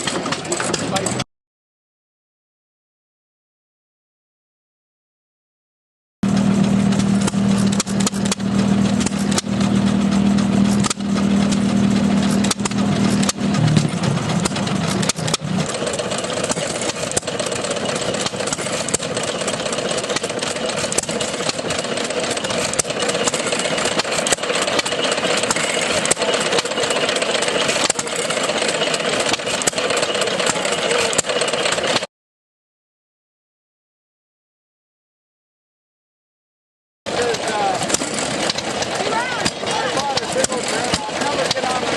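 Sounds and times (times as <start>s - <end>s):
tractor engine running: 0.0s - 1.2s, 6.2s - 32.1s, 37.1s - 41.9s
low hum: 6.2s - 18.8s.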